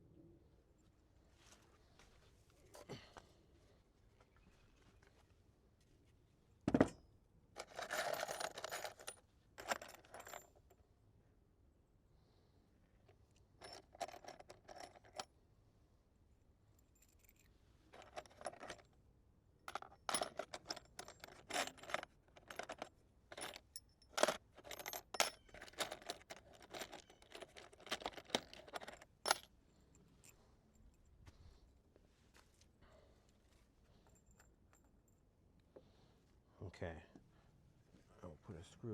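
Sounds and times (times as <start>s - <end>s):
metal screws clinking and rattling: 7.6s - 10.6s, 13.6s - 15.3s, 16.8s - 18.9s, 19.7s - 31.0s.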